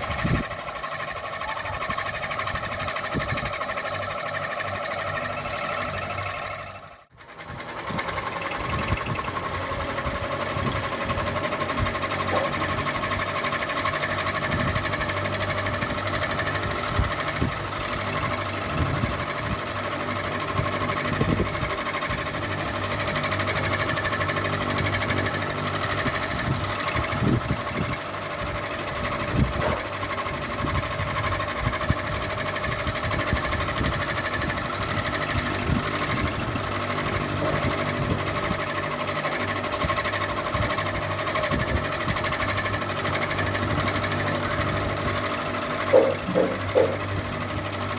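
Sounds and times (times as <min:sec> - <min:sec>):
ceiling fan motor hum: 0:00.0 - 0:06.8
light knocks and rattles: 0:45.8 - 0:47.1.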